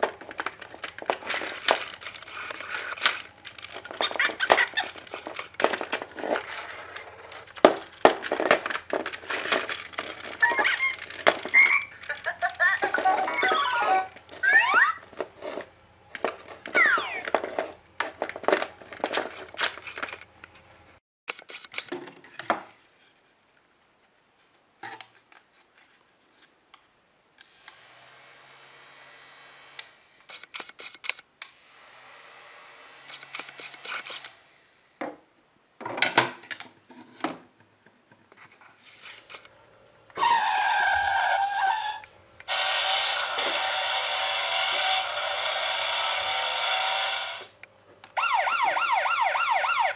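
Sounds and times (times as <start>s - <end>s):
plastic toy clicks and rattles: 0.0s - 20.4s, 21.3s - 22.0s, 30.3s - 31.2s, 33.1s - 34.3s
electronic toy beeping tones: 16.8s - 17.3s.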